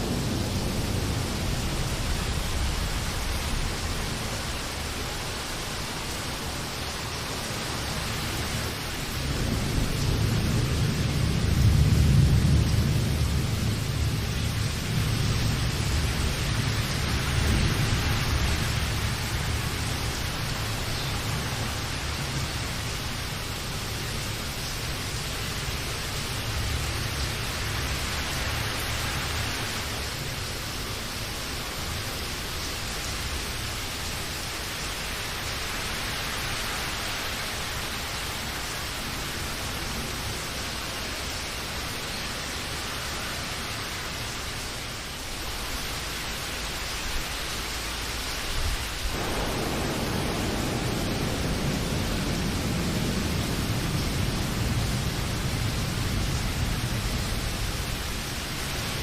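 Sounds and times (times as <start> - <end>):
low rumble of thunder: 0.0 - 32.2, 47.2 - 59.0
steady rain: 0.0 - 59.0.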